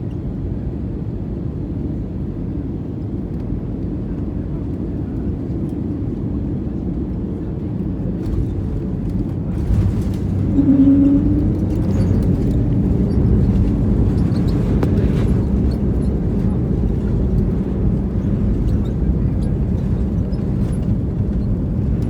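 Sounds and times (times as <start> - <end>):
airplane cabin engine rumble: 0.0 - 22.0
light rattles: 8.2 - 22.0.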